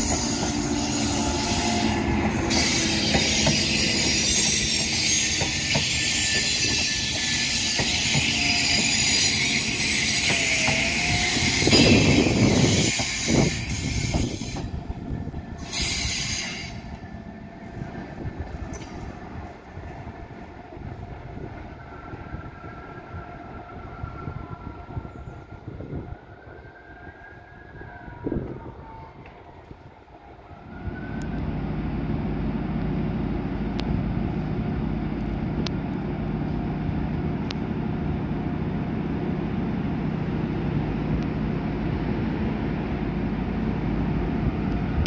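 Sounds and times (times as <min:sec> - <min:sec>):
train wheels squealing: 0:00.0 - 0:19.6
steady engine drone: 0:30.7 - 0:45.0.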